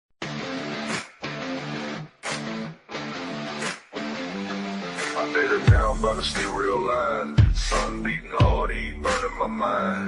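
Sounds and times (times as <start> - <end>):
guitar strumming chords: 0.2 - 9.9.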